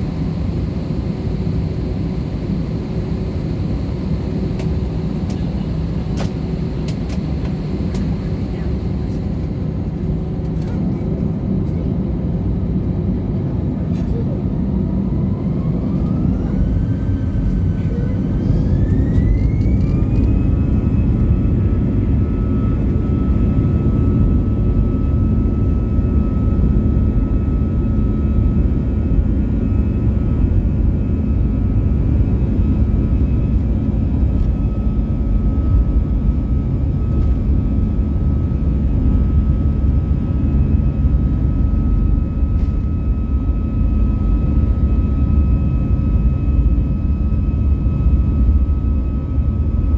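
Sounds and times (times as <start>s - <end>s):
jet engines spooling up: 13.6s - 23.3s.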